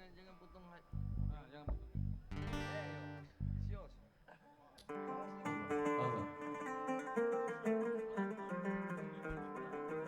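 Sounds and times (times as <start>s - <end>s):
plucked string melody: 1.0s - 3.8s, 4.9s - 10.0s.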